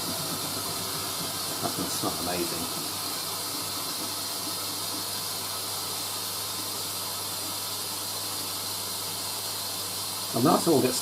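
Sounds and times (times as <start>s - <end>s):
water rushing into washing machine: 0.0s - 11.0s.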